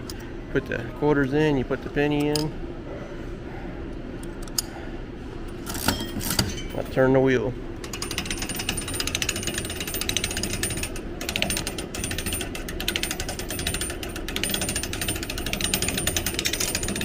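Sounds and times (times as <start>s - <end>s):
hand-cranked machine clattering clicks: 7.8s - 17.0s.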